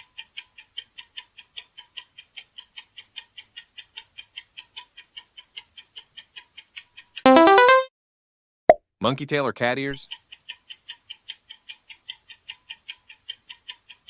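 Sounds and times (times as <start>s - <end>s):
fast clock ticks: 0.0s - 7.2s, 10.0s - 14.0s.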